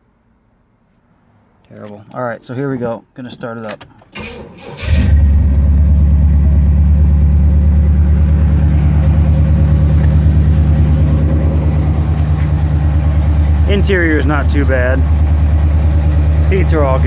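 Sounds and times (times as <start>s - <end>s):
car engine starting: 4.1s - 17.0s
car engine idling: 4.2s - 17.0s.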